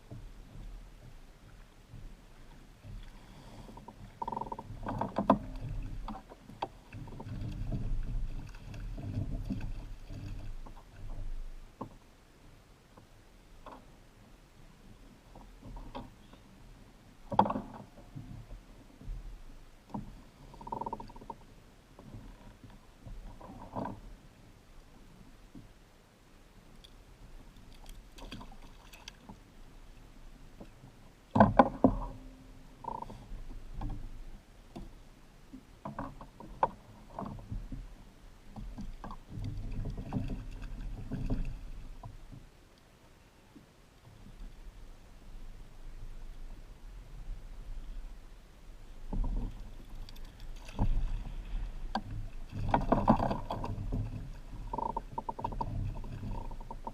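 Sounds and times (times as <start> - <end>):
knocks and clatter on kayak: 0.0 - 12.0, 13.0 - 14.0, 14.9 - 16.5, 17.2 - 24.2, 30.6 - 42.5, 48.9 - 56.9.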